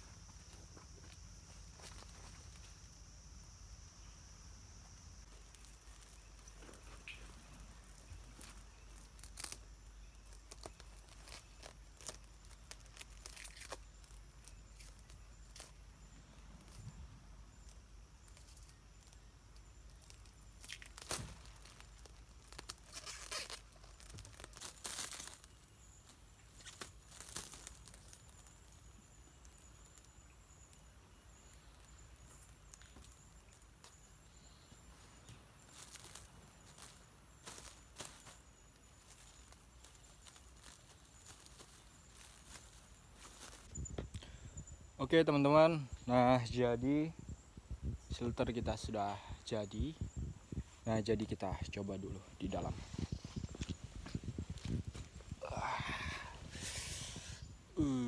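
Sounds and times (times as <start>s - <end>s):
plastic sheeting rustling: 20.7s - 25.5s, 39.0s - 43.7s.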